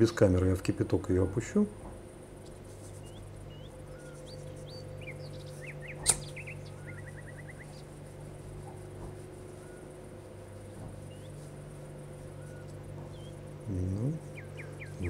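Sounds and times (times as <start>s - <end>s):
steady low hum: 0.0s - 15.0s
small bird chirping: 2.4s - 15.0s
sharp click: 6.0s - 6.4s.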